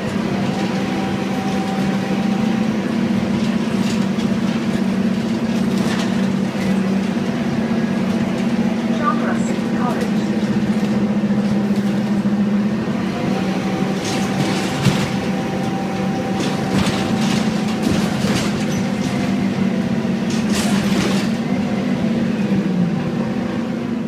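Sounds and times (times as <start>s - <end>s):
bus engine running: 0.0s - 24.0s.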